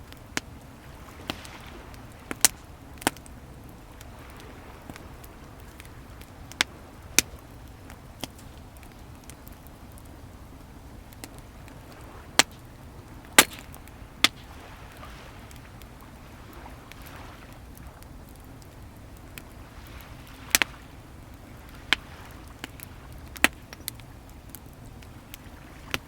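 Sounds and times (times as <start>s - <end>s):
bonfire crackling and popping: 0.0s - 26.0s
waves washing: 0.0s - 26.0s.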